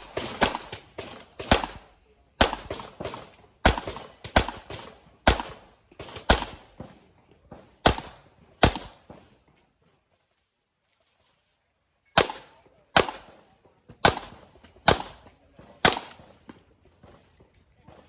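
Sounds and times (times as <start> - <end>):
handgun shots with echo: 15.8 - 16.4.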